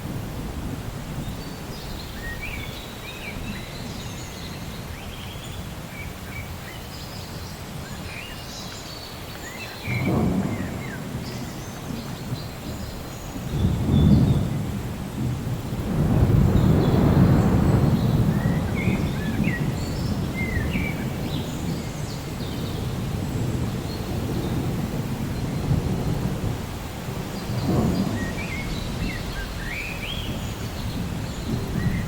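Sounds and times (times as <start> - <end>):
steady rain: 0.0 - 32.0
thunder rumbling: 9.8 - 32.0.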